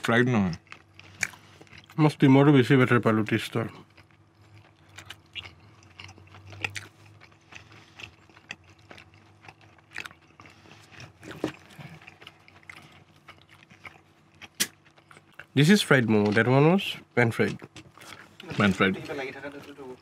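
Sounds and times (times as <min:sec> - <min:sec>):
person chewing: 0:00.0 - 0:02.0, 0:03.1 - 0:15.6, 0:17.4 - 0:20.0
faint low hum: 0:00.0 - 0:20.0
mouth clicks and smacks: 0:14.4 - 0:15.5.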